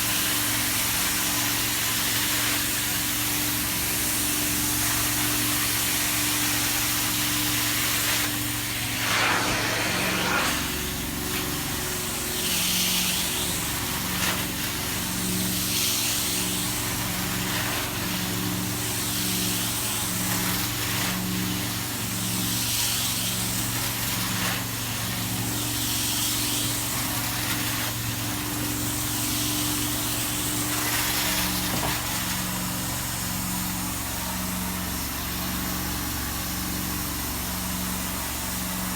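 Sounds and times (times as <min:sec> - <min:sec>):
carpet cleaning machine humming: 0:00.0 - 0:38.9
hiss of spray and suction: 0:07.8 - 0:11.3.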